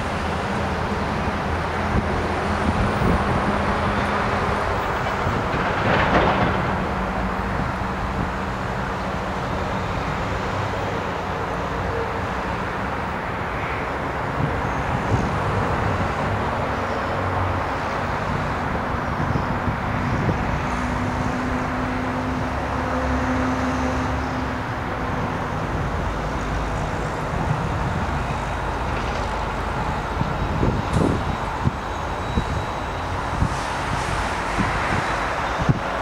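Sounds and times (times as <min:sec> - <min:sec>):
distant train rumble: 0:00.0 - 0:36.0
road traffic noise: 0:00.0 - 0:36.0
wind bumps on microphone: 0:14.4 - 0:16.4, 0:18.2 - 0:21.9, 0:26.7 - 0:36.0.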